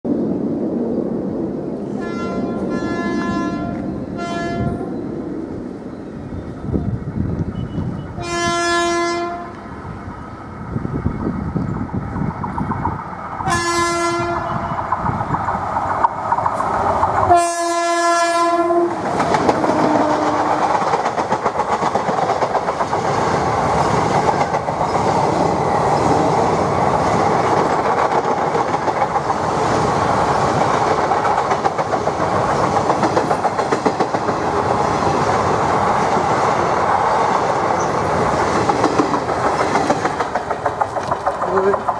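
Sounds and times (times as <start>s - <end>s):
locomotive horn blasts: 2.0s - 4.9s, 8.2s - 9.6s, 13.5s - 14.8s, 17.3s - 19.0s, 19.7s - 20.7s
train wheels clattering over rails: 10.9s - 17.6s, 18.3s - 41.9s.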